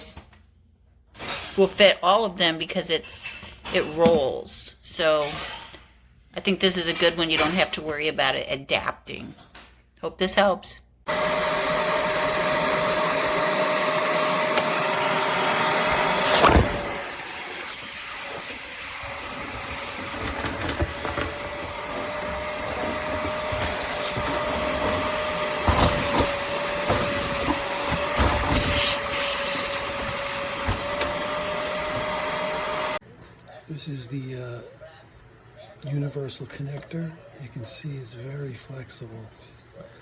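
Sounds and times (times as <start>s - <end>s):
vacuum cleaner whine: 11.1s - 33.0s
thumps: 14.2s - 33.0s.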